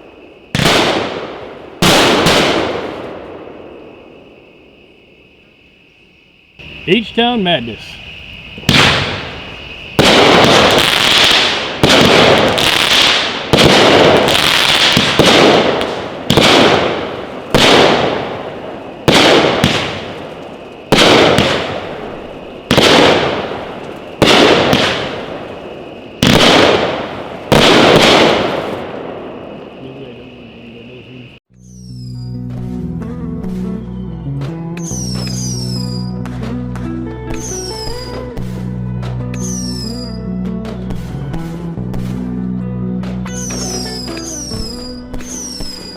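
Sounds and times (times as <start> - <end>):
fireworks shots booming: 0.0 - 4.8, 6.6 - 31.4, 43.0 - 45.9.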